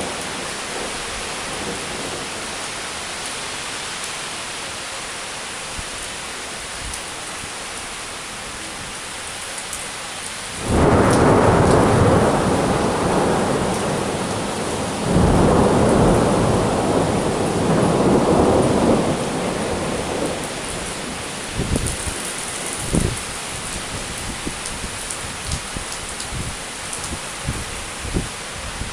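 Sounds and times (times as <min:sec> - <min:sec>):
rain falling: 0:00.0 - 0:28.9
thunder crack and rumble: 0:10.6 - 0:23.3.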